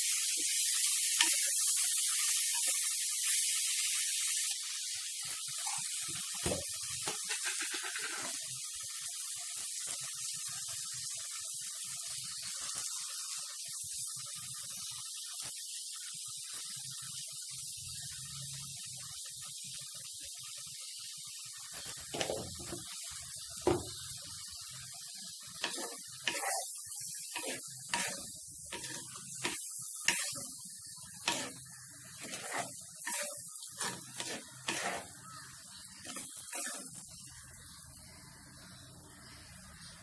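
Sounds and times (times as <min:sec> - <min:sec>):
vegetables sizzling in a pot: 0:00.0 - 0:40.0
spatula scraping a pot: 0:25.6 - 0:35.4, 0:36.0 - 0:37.2.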